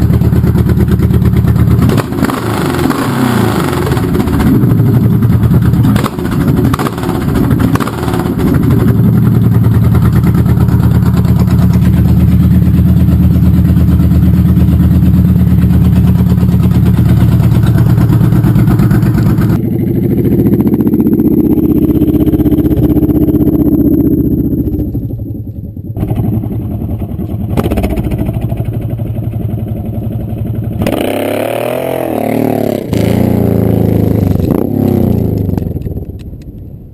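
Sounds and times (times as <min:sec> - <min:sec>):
motorcycle engine revving: 0:00.0 - 0:36.4.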